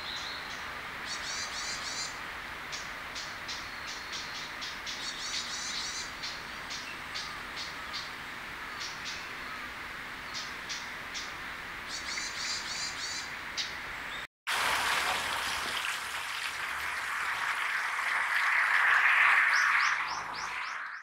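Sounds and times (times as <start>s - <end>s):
small birds chirping: 0.0s - 14.3s, 19.4s - 21.0s.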